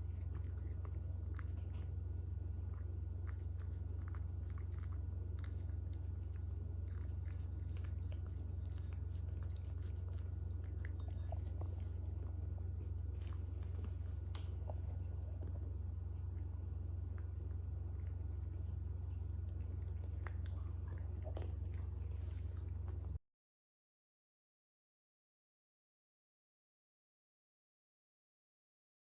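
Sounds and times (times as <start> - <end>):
cat crunching food: 0.0 - 23.2
steady low hum: 0.0 - 23.2.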